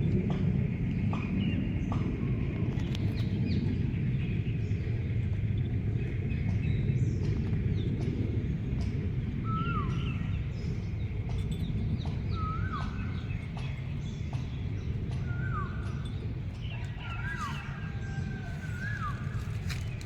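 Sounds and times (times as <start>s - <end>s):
low rumbling noise: 0.0s - 20.0s
songbird whistled call: 12.3s - 13.3s.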